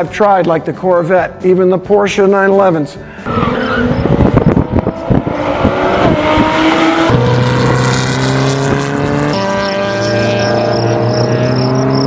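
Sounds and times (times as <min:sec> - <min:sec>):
background music with held notes: 0:00.0 - 0:07.3
race car engine revving: 0:03.2 - 0:12.0.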